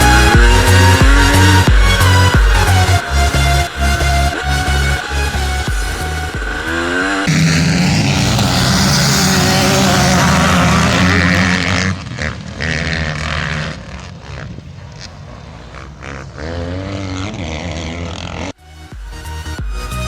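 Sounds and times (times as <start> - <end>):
two-stroke motocross engine revving: 0.0 - 18.6.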